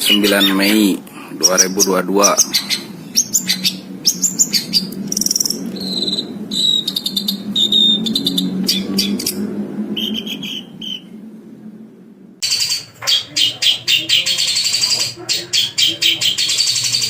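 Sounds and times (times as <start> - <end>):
bird singing: 0.0 - 11.8, 12.4 - 17.0
steady low hum: 0.0 - 17.0.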